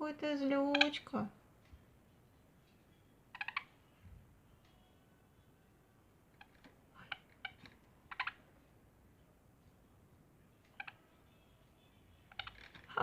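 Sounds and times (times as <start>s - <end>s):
parrot clicks and squeaks: 0.7s - 1.1s, 3.4s - 3.8s, 6.3s - 8.4s, 10.7s - 11.0s, 12.3s - 13.0s.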